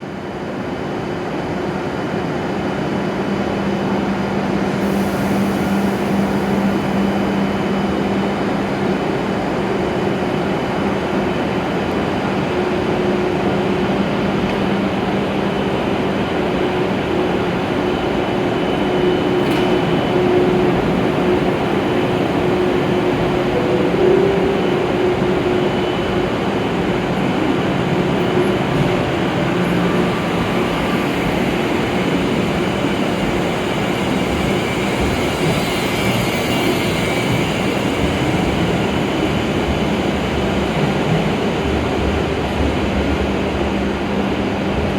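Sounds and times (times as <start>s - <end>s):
electric train departing: 0.1s - 44.9s.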